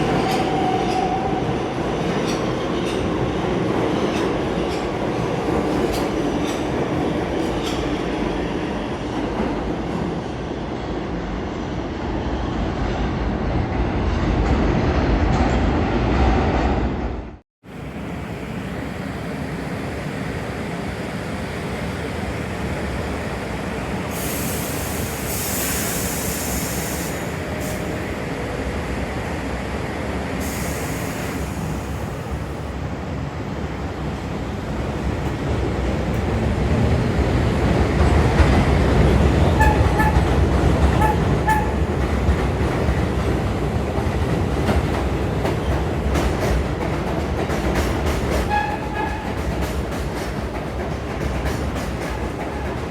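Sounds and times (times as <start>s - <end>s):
subway train wheels rumbling on rail: 0.0s - 52.9s
high hissing: 24.0s - 27.9s.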